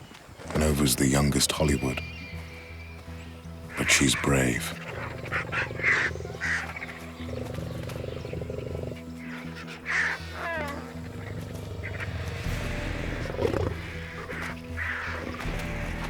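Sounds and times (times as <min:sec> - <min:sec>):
lioness growling and snarling: 0:03.8 - 0:16.0.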